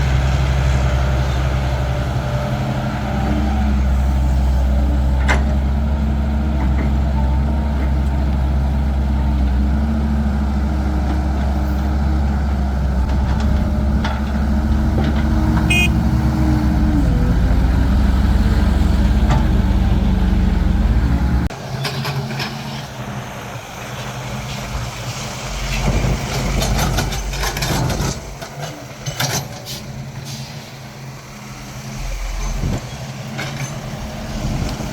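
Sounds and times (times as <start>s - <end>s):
heavy diesel engine droning: 0.0s - 34.9s
knocks and clatter: 25.7s - 29.7s.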